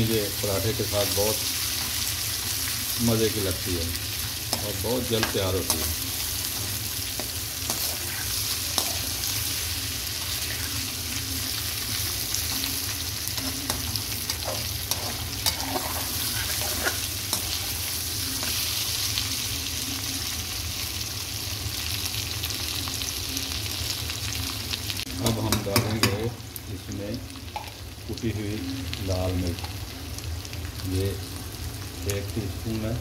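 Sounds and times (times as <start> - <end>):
potatoes sizzling in hot fat: 0.0 - 33.0
metal spoon scraping a pan: 4.4 - 10.9, 12.0 - 18.8.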